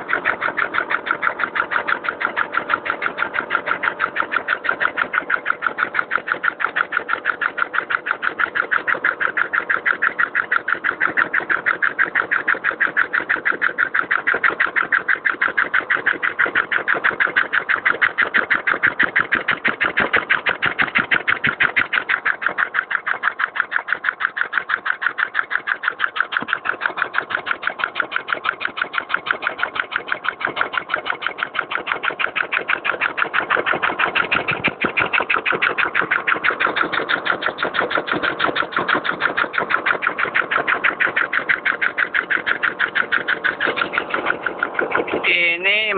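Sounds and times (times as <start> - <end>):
air-powered engine running: 32.6 - 45.9.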